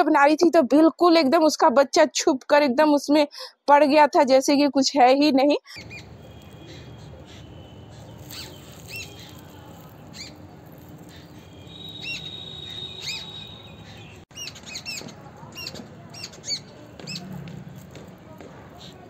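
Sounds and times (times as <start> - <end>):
small birds chirping: 5.6 - 18.0
thin held whistle: 11.2 - 14.2.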